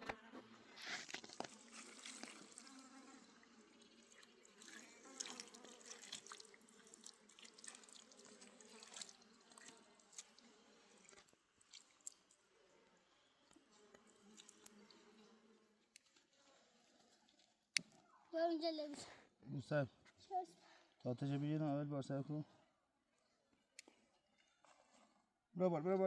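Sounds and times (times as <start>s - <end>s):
water splashing and dripping: 3.7s - 10.4s, 11.0s - 12.4s.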